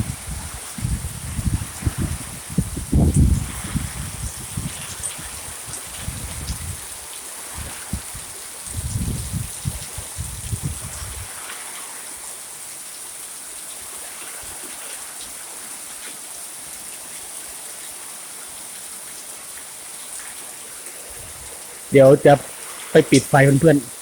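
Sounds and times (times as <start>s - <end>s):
wind buffeting microphone: 0.0s - 11.3s
steady rain: 0.0s - 24.0s.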